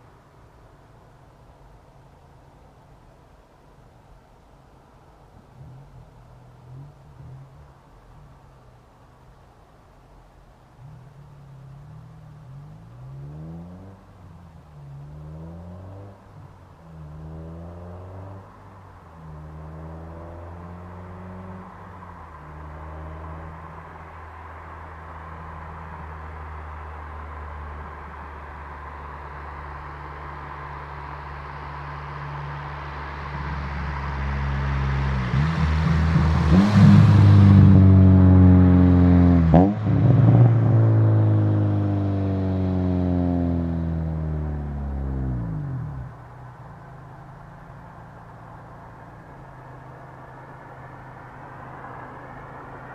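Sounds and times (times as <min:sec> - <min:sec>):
car engine accelerating: 0:10.6 - 0:52.9.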